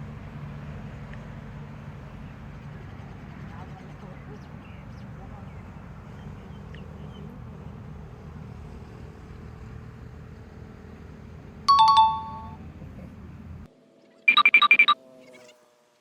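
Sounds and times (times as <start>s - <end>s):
low outdoor rumble: 0.0s - 13.7s
two-note doorbell chime: 11.7s - 12.6s.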